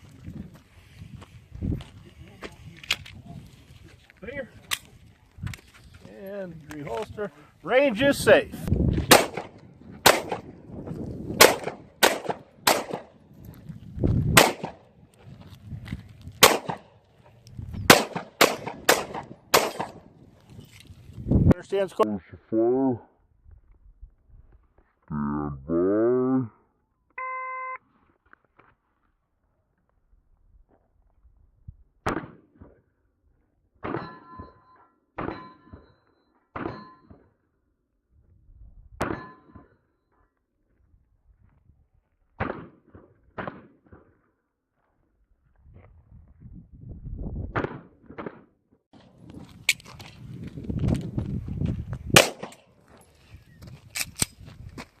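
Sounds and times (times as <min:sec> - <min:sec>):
pistol shots with echo: 0:09.1 - 0:10.5, 0:11.4 - 0:13.2, 0:14.4 - 0:14.9, 0:16.4 - 0:16.9, 0:17.9 - 0:20.1, 0:52.2 - 0:52.6
steel target ringing clang: 0:33.9 - 0:36.0, 0:36.6 - 0:37.1, 0:39.1 - 0:39.6.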